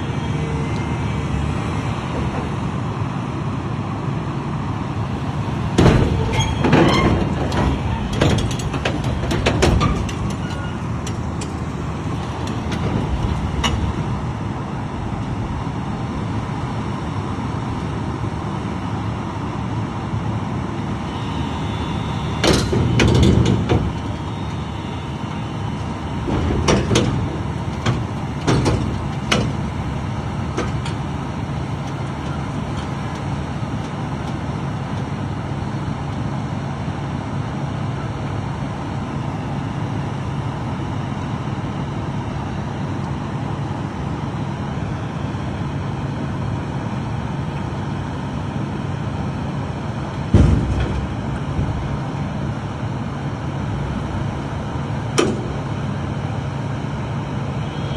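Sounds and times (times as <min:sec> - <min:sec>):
road noise: 0:00.0 - 0:57.9
vehicle engine drone: 0:00.0 - 0:57.9
thumps: 0:50.3 - 0:52.1.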